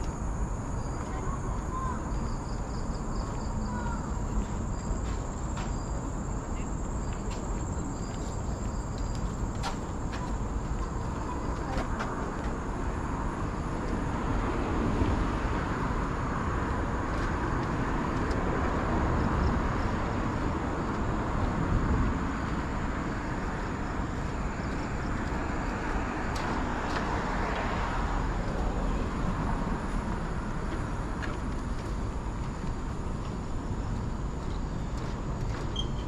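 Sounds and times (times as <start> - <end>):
insects droning: 0.0 - 36.0
cars passing: 3.0 - 35.7.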